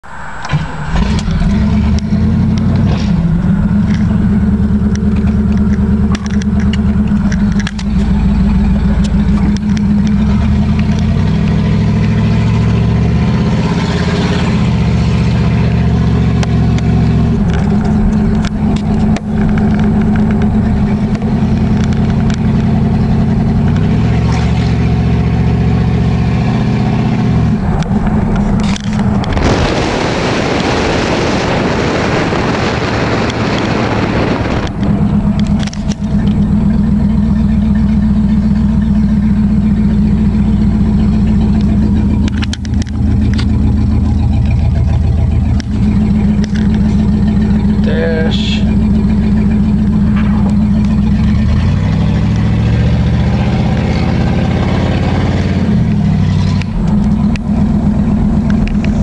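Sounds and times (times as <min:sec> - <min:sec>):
car engine running and revving: 0:00.0 - 0:59.0
car engine starting: 0:00.0 - 0:59.0.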